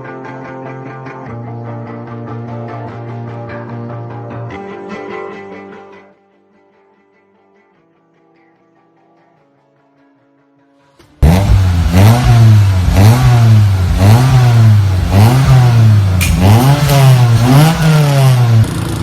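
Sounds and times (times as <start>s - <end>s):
car engine revving: 11.2s - 19.0s.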